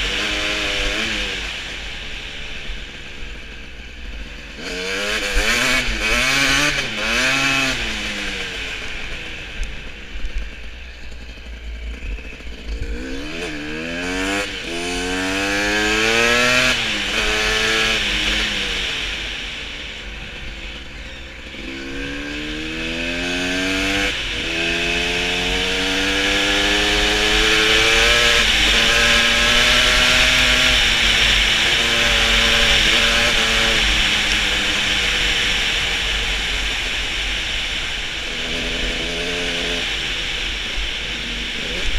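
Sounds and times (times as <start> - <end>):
motorcycle engine accelerating: 0.0 - 41.9
rushing wind noise: 12.5 - 41.9.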